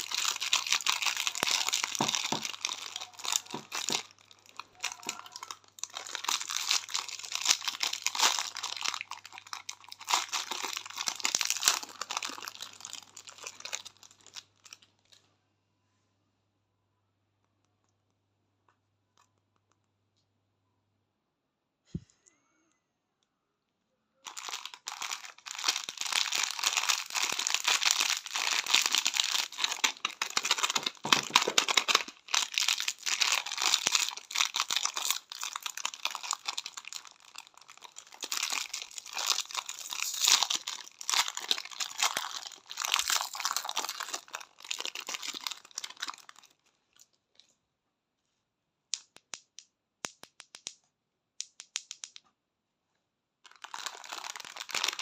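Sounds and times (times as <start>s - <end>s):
candy wrappers crinkling: 0.0s - 15.3s, 24.2s - 47.5s, 53.4s - 55.0s.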